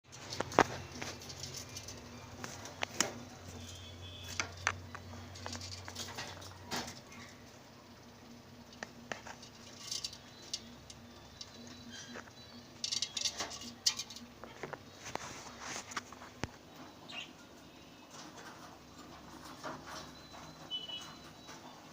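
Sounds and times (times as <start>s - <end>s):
budgies chirping: 16.6s - 17.5s.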